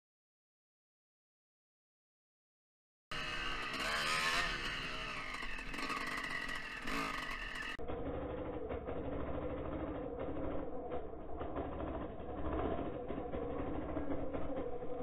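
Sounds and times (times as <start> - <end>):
dirt bike engine revving: 3.1 - 15.0.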